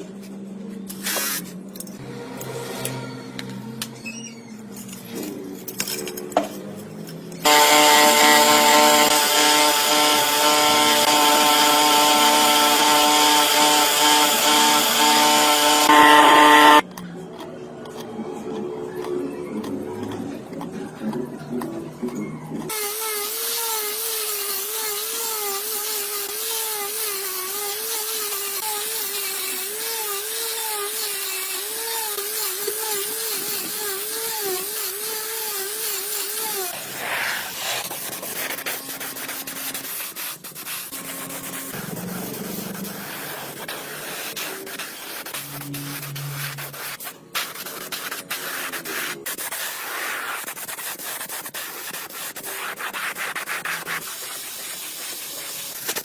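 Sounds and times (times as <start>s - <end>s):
electric sanding tool motor: 7.4s - 16.8s.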